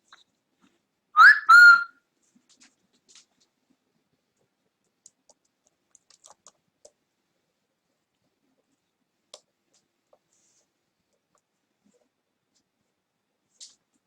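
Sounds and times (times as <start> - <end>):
small clicks and ticks: 2.3 - 3.6, 4.3 - 7.0.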